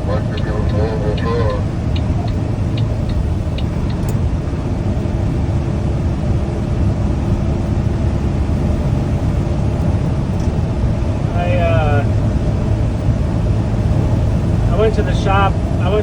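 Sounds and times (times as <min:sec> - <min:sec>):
diesel engine and road drone: 0:00.0 - 0:16.0
light ticks: 0:00.3 - 0:04.2.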